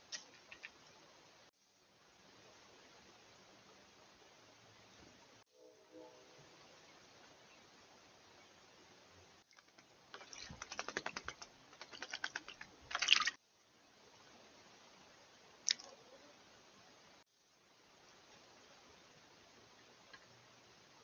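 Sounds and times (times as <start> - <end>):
rapid sharp clicks: 9.5 - 13.4.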